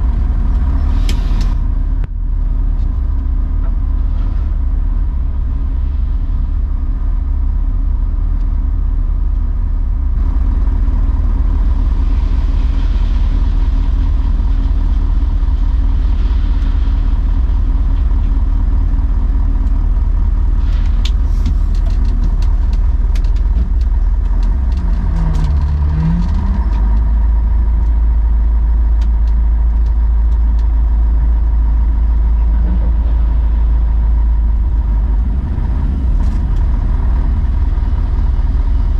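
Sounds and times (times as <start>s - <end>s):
truck diesel engine rumbling: 0.0s - 38.9s
clattering ticks: 20.8s - 27.1s.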